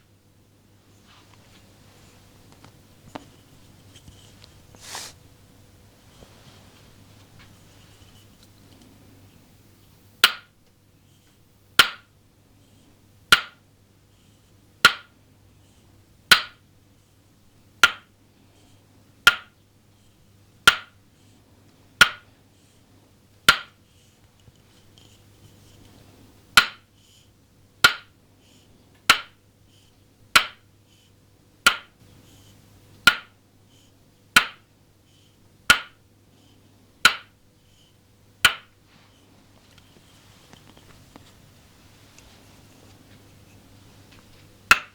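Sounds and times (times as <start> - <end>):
wooden mallet knocking on stake: 10.2 - 10.5, 13.3 - 13.6, 20.7 - 21.0, 23.5 - 23.7, 27.8 - 28.1, 30.4 - 30.6, 34.4 - 34.6, 35.7 - 36.0, 37.0 - 37.3, 38.4 - 38.7.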